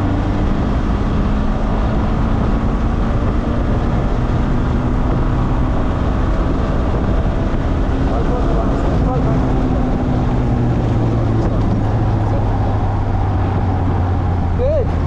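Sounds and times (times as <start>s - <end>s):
sports car engine running hard: 0.0s - 15.0s
car passage noise: 4.2s - 15.0s.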